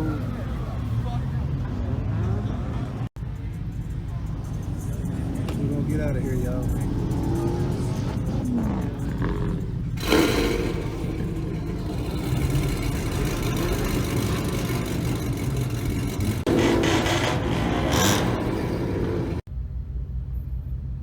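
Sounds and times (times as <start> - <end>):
car engine rumbling: 0.0 - 21.0.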